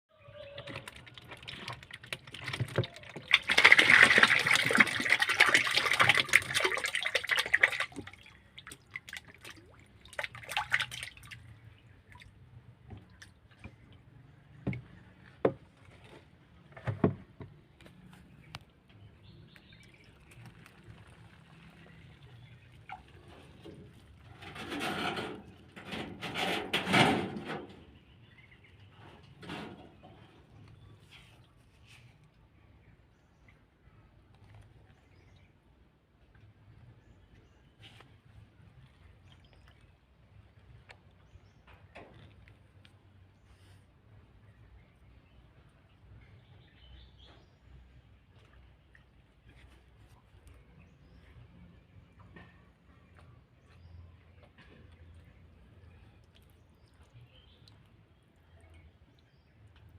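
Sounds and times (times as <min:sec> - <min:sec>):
water pouring into pond: 0:00.4 - 0:14.8, 0:19.3 - 0:26.6
drips and small splashes: 0:00.4 - 0:59.9.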